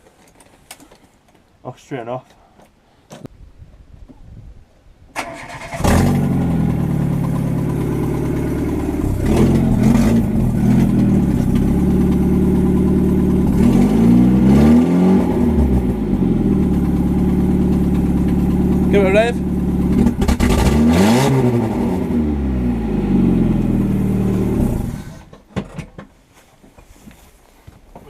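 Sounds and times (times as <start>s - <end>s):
car engine idling and revving: 5.6s - 25.3s.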